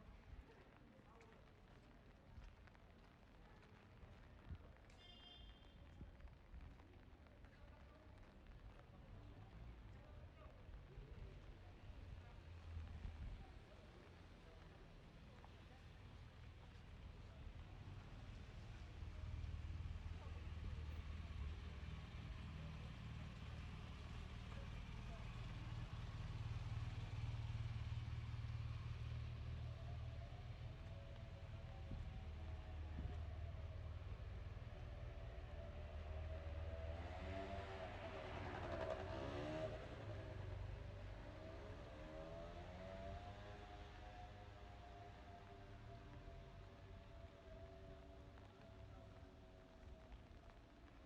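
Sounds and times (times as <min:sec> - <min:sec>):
low rumble of traffic: 0:05.5 - 0:51.0
passing vehicle engine: 0:35.0 - 0:44.6.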